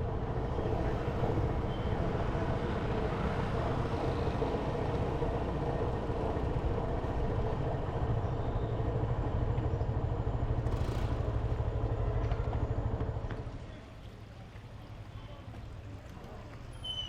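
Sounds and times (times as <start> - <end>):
motorcycle engine running: 2.3 - 13.5.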